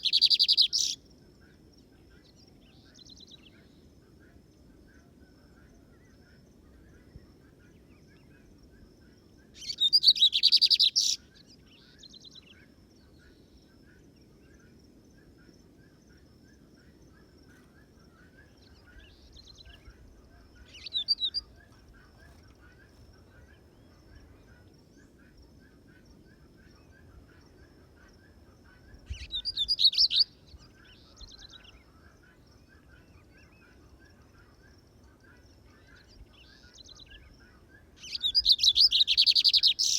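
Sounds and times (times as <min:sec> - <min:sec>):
bird singing rattling trills: 0:00.0 - 0:01.0, 0:09.6 - 0:11.2, 0:20.6 - 0:21.5, 0:38.0 - 0:39.9.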